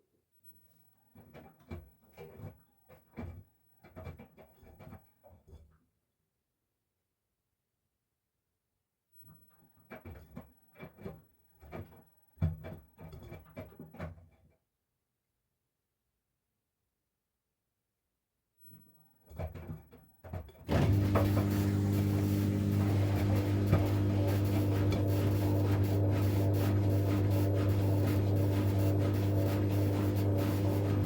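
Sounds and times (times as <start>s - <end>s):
washing machine spinning hum: 20.7s - 31.0s.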